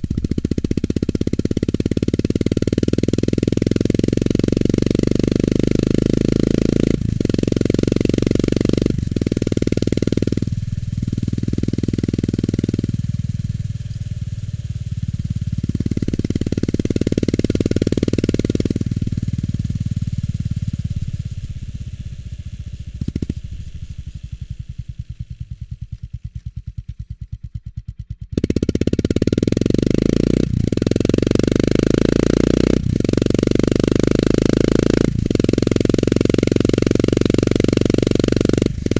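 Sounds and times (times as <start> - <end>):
motorcycle engine revving: 0.0 - 38.9
motorcycle exhaust pulses at idle: 0.0 - 38.9.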